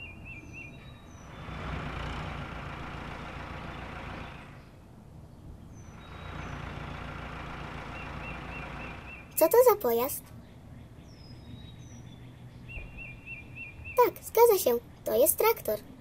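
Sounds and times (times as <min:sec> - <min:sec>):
cartoon vehicle engine: 0:01.3 - 0:04.7, 0:05.8 - 0:10.3.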